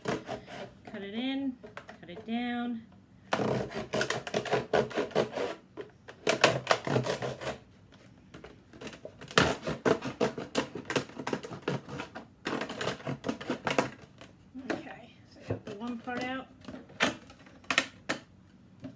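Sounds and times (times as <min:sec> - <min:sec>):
knife cutting plastic jug: 0:00.0 - 0:01.0, 0:03.3 - 0:07.7, 0:08.8 - 0:14.8.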